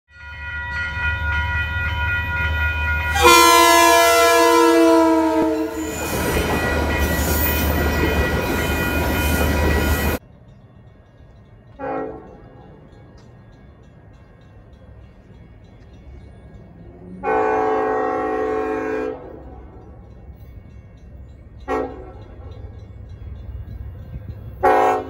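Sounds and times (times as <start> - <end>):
crossing bells ringing: 0.1 - 25.0
passing train rushing: 0.1 - 25.0
train horn: 3.1 - 10.2, 11.8 - 12.5, 17.0 - 19.6, 21.6 - 22.6, 24.6 - 25.0.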